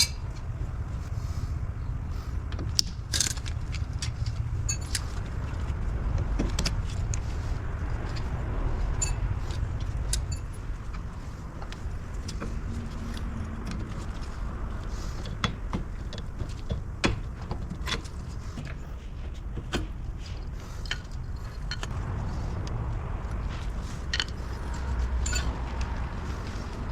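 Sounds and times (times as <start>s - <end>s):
metal tools clicking and clinking: 0.0s - 0.3s, 2.8s - 5.3s, 8.9s - 10.7s, 20.7s - 22.0s, 24.0s - 26.6s
steady low rumble: 0.0s - 26.9s.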